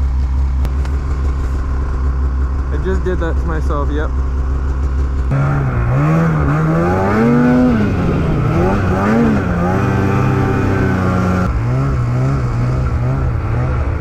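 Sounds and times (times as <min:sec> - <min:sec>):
snowmobile engine revving: 0:05.2 - 0:14.0.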